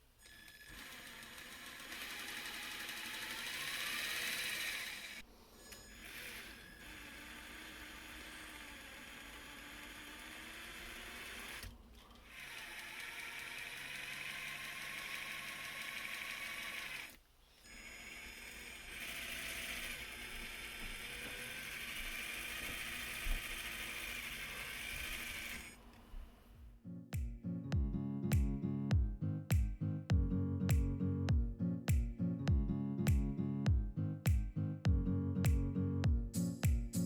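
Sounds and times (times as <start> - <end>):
electric motor whining: 0.3 - 25.8.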